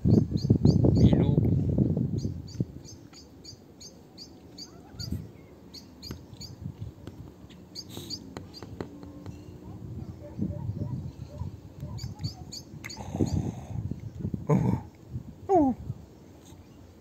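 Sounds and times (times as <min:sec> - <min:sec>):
small bird chirping: 0:00.0 - 0:01.2, 0:02.1 - 0:14.3.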